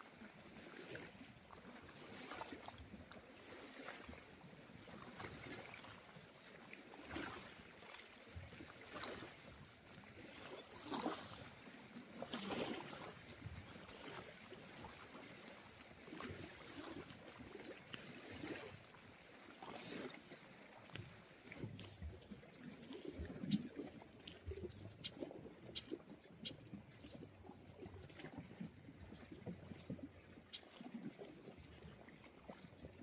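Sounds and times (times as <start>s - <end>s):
water swishing and lapping: 0.0s - 33.0s.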